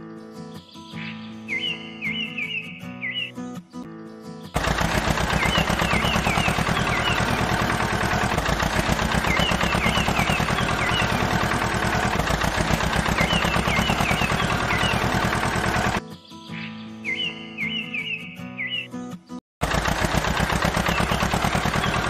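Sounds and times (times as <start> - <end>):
birds chirping: 0.0 - 19.4, 20.6 - 22.0
machine rattling: 4.6 - 16.0, 19.6 - 22.0.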